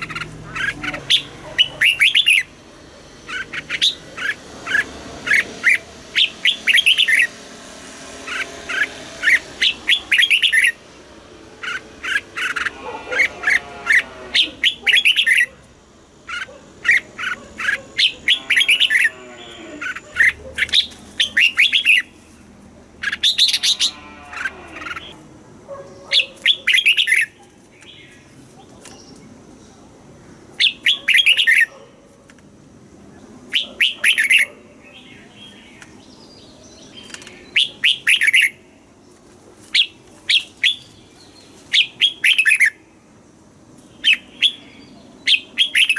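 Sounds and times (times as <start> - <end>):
bird singing whistled notes: 5.3 - 7.3, 8.7 - 10.8, 36.4 - 38.6, 44.0 - 45.9.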